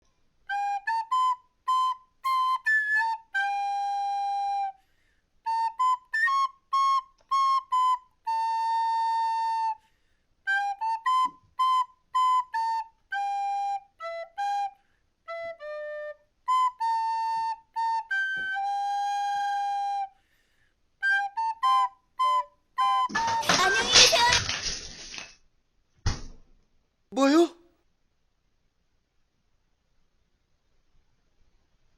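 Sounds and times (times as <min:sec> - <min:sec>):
solo flute-like melody: 0:00.4 - 0:23.8.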